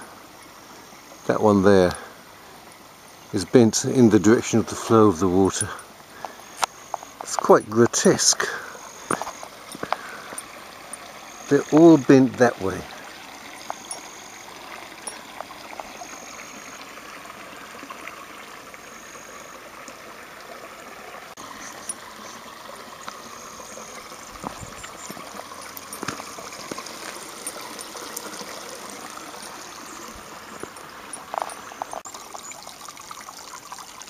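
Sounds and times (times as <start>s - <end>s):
water trickling over rock: 0.0s - 34.0s
faint clicks: 9.0s - 11.1s.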